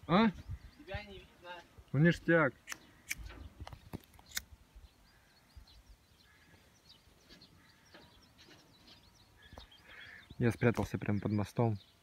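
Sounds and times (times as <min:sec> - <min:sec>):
faint bird chirps: 0:02.6 - 0:12.0.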